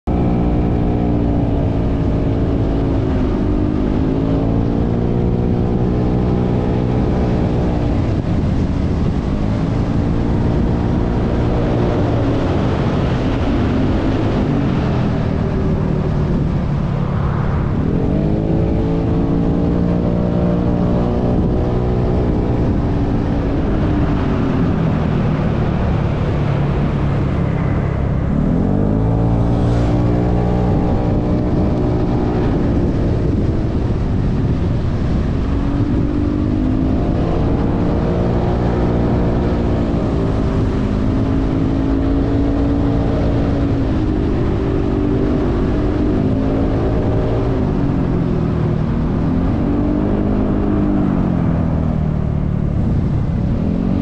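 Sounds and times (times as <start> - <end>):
motorcycle engine accelerating: 0.0 - 54.0
wind and road noise: 0.0 - 54.0.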